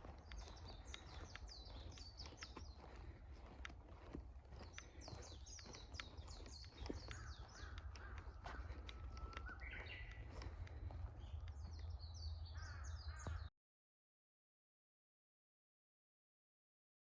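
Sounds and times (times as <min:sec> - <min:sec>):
birds chirping: 0:00.0 - 0:13.5.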